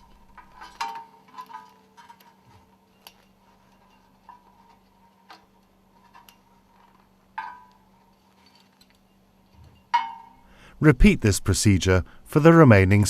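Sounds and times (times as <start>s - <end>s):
light metallic clicks and clinks: 0.0s - 10.4s
faint steady hum: 0.0s - 13.0s.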